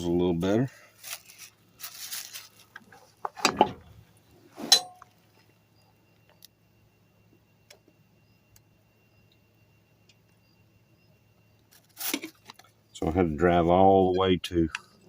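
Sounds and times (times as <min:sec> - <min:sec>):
metal tools clanking: 0:03.4 - 0:04.0, 0:04.6 - 0:05.1.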